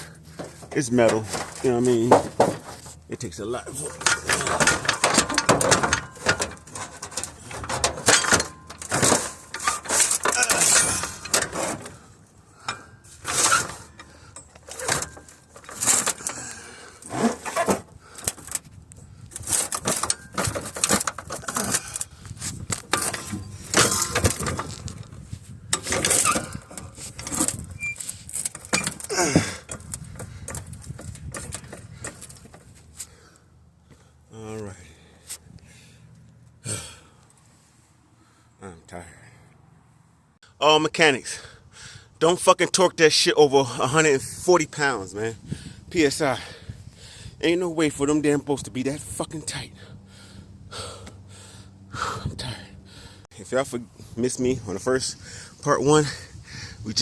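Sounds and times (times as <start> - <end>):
hand tools clanking on metal: 0.2 - 18.6, 19.4 - 25.0, 25.7 - 33.2.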